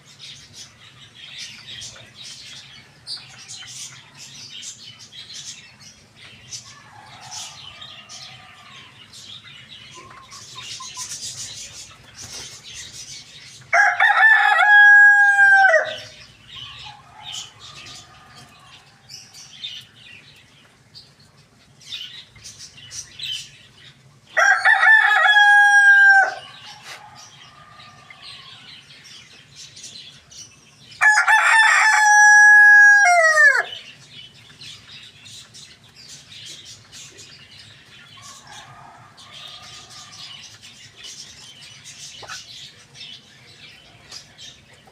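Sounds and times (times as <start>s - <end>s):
hen clucking: 9.9s - 13.0s, 42.0s - 42.6s
rooster crowing: 13.7s - 16.2s, 24.4s - 28.7s, 31.0s - 33.8s, 38.2s - 40.5s.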